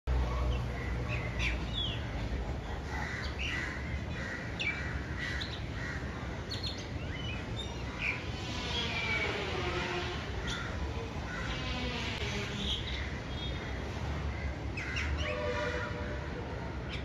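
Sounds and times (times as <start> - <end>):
bird singing: 3.0 - 13.8.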